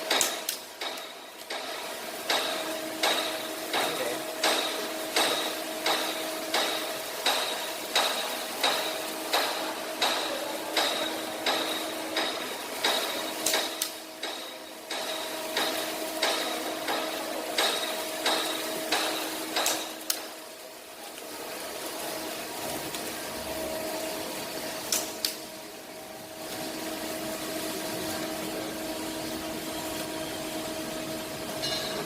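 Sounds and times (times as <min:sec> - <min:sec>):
hammer striking metal: 0:00.0 - 0:20.4, 0:31.6 - 0:32.0
low workshop noise: 0:00.0 - 0:32.0.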